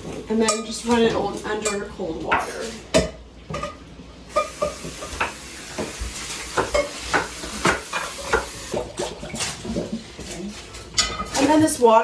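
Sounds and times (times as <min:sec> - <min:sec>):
tap water running into sink: 0:04.3 - 0:10.0
cookware clinking and knocking: 0:06.6 - 0:08.5.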